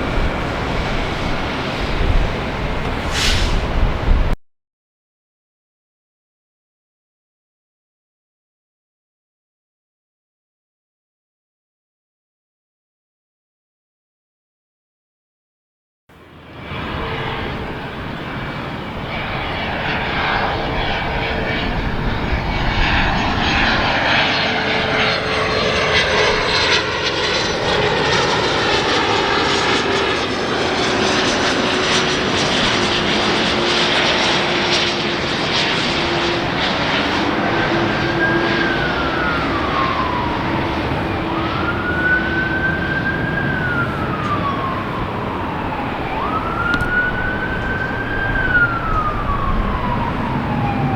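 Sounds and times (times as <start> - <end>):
jet airliner passing overhead: 0.0 - 4.4, 16.2 - 50.9
siren wailing: 19.8 - 50.9.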